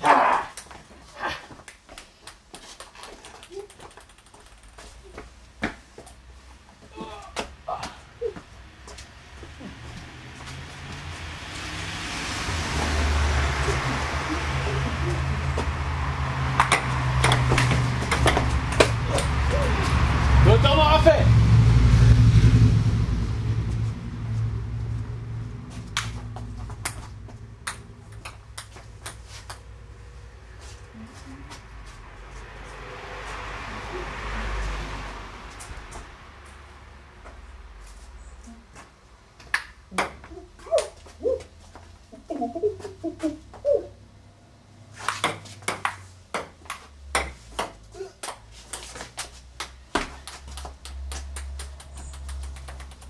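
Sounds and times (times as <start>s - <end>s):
low rumble: 9.4s - 28.1s.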